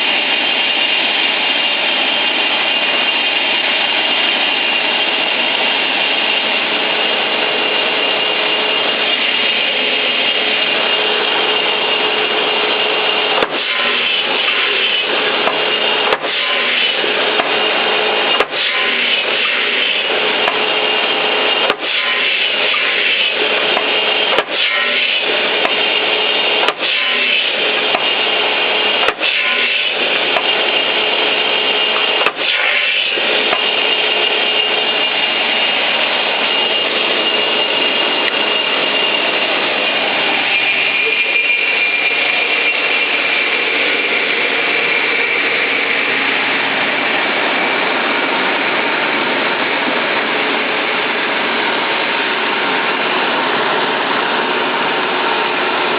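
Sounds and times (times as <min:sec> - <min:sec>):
saw whining: 0:00.0 - 0:55.9
sharp saw clicks: 0:13.3 - 0:17.7, 0:18.3 - 0:20.8, 0:21.6 - 0:34.1.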